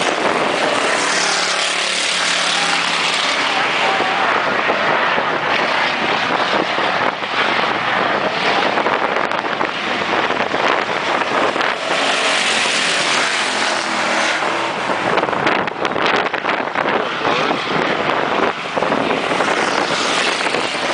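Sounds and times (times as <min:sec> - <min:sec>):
race car passing by: 0:00.0 - 0:15.3
race car engines running hard: 0:00.0 - 0:20.9.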